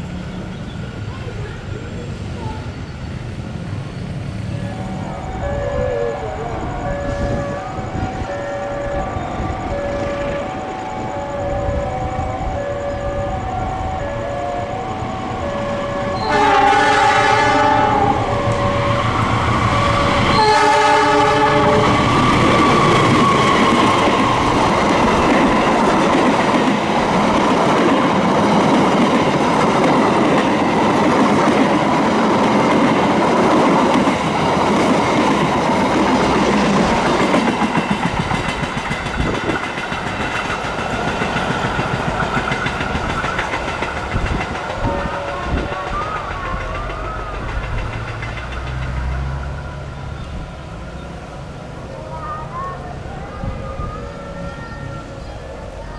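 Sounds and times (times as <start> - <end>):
train wheels rumbling and clacking: 0.0 - 51.9
train horn: 4.5 - 24.7, 44.6 - 47.7.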